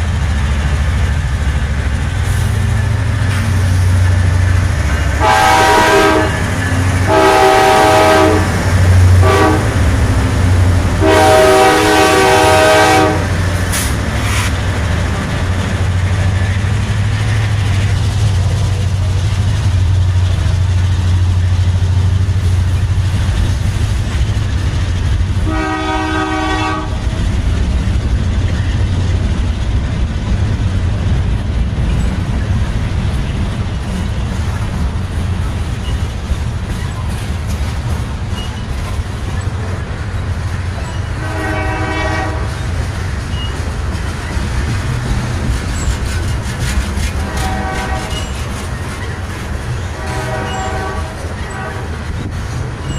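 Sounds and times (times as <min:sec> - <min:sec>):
diesel engines rumbling: 0:00.0 - 0:52.9
locomotive air horn blasts: 0:05.2 - 0:09.8, 0:11.0 - 0:14.5, 0:25.4 - 0:27.0, 0:41.2 - 0:42.6, 0:47.2 - 0:48.2, 0:49.9 - 0:52.0.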